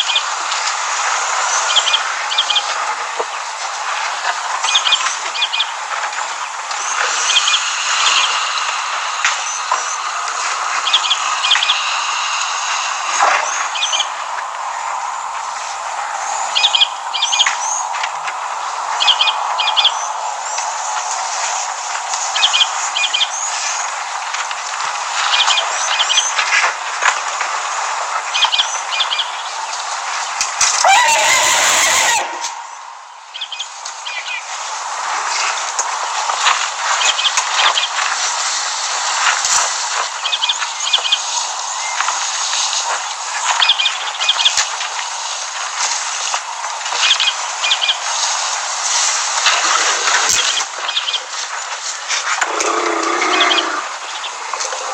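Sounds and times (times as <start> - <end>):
hiss of insects and birds: 0.0 - 54.9
bird chirping calls: 6.8 - 8.6, 13.4 - 14.1, 30.8 - 32.8, 52.4 - 54.9
short high bird call: 30.8 - 32.7.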